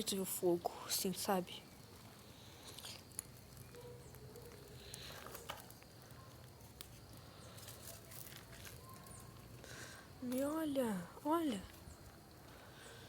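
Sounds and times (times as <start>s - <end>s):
small fire crackling: 0.0s - 13.0s
low background hiss: 8.9s - 13.0s.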